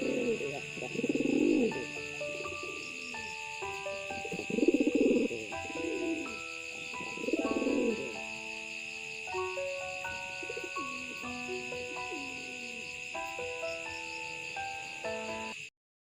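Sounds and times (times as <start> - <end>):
pigeon cooing: 0.0 - 8.4, 10.0 - 13.1
background music with simple melody: 0.0 - 15.7.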